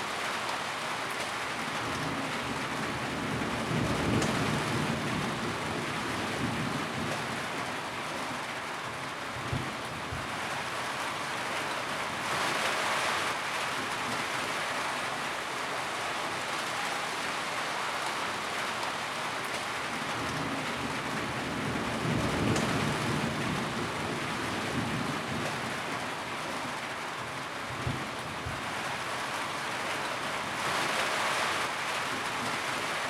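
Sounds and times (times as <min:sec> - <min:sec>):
rain on a tin roof: 0:00.0 - 0:33.0.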